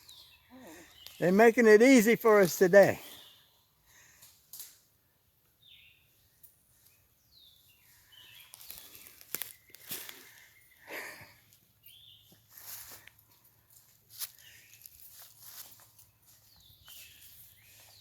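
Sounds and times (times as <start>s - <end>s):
footsteps on woodland trail: 0.9s - 3.4s, 7.4s - 18.0s.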